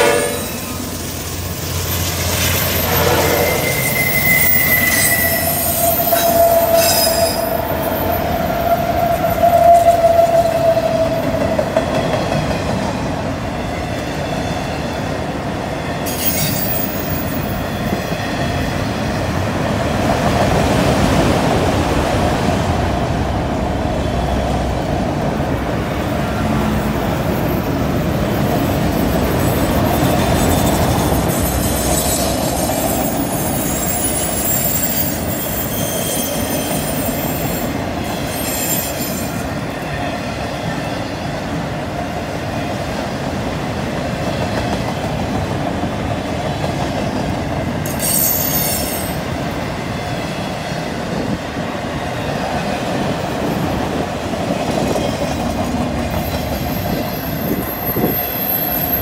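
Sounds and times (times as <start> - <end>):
freight train wheels rumbling: 0.0 - 59.0
wheel flange squeal: 1.0 - 10.6, 16.1 - 18.0, 29.4 - 39.4.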